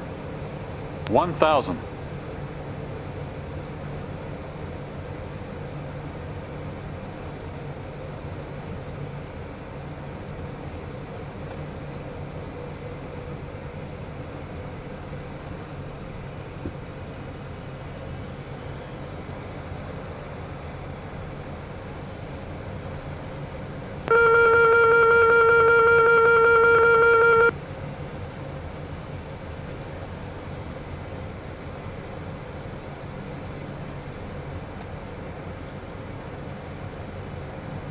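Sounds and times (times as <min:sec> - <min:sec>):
aircraft engine and airflow noise: 0:00.0 - 0:37.9
cockpit alert tone: 0:24.1 - 0:27.5.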